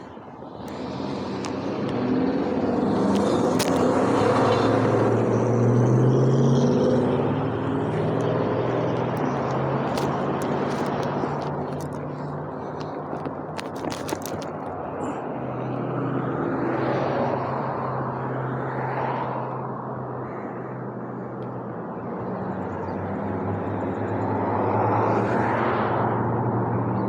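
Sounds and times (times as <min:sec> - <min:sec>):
road traffic passing: 0:00.0 - 0:27.0
sharp clicks: 0:07.9 - 0:15.0.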